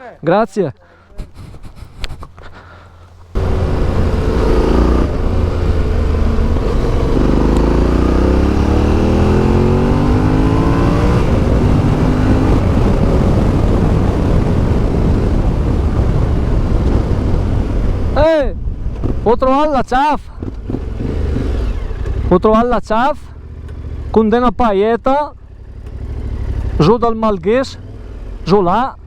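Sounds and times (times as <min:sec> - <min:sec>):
motorcycle engine accelerating: 0:03.3 - 0:18.2, 0:20.4 - 0:22.6, 0:23.3 - 0:24.5, 0:25.4 - 0:28.6.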